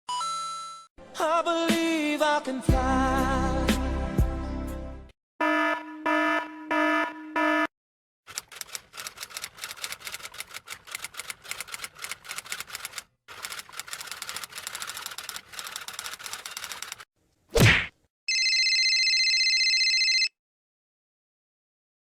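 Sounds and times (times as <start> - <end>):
fast keyboard typing: 8.3 - 17.0.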